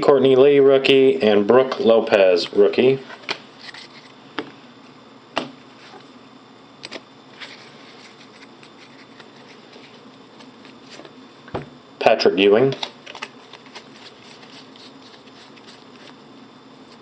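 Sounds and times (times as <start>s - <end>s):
cards being handled: 6.9s - 11.2s, 12.8s - 16.2s.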